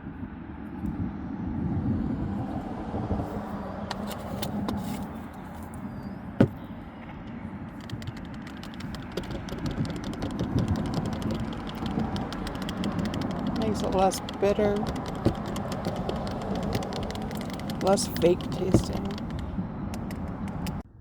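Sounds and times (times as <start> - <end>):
rapid small clicks: 7.2 - 20.8.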